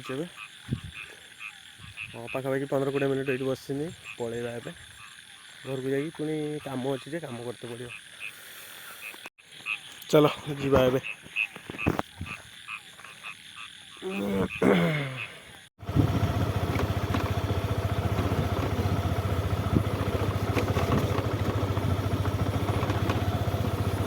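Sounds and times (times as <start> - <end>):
frogs croaking: 0.0 - 15.7, 16.3 - 24.0
motorcycle engine running: 15.8 - 24.0.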